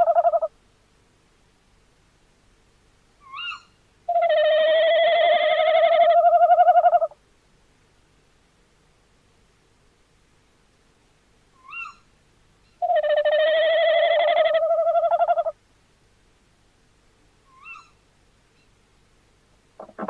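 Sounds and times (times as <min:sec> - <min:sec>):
owl calling: 0:00.0 - 0:00.5, 0:03.2 - 0:07.2, 0:11.6 - 0:12.1, 0:12.8 - 0:15.6, 0:17.5 - 0:18.0, 0:19.8 - 0:20.0
owl quavering hoot: 0:00.0 - 0:00.5, 0:03.2 - 0:07.2, 0:11.6 - 0:12.1, 0:12.8 - 0:15.6, 0:17.5 - 0:18.0, 0:19.8 - 0:20.0.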